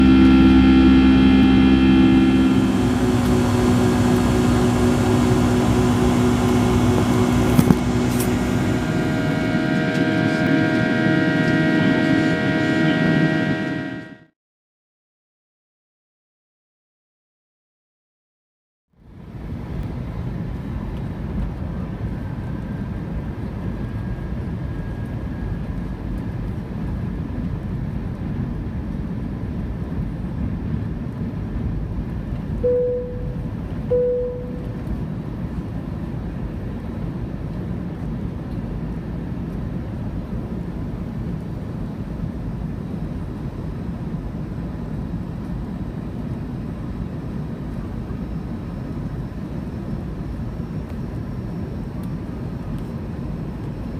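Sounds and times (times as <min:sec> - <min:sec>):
airliner cabin engine rumble: 0:00.0 - 0:14.2, 0:19.2 - 0:53.9
faint steady whine: 0:00.0 - 0:14.3, 0:19.0 - 0:53.9
short chime tones: 0:32.6 - 0:34.8.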